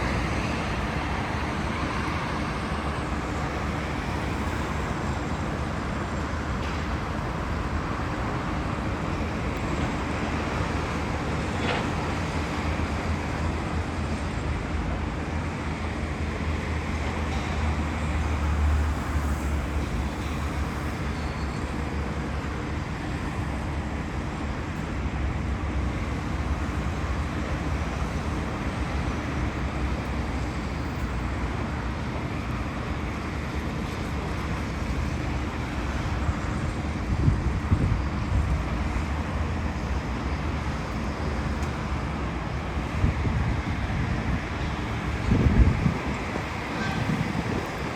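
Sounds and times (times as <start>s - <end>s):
road vehicle rumble: 0.0s - 47.9s.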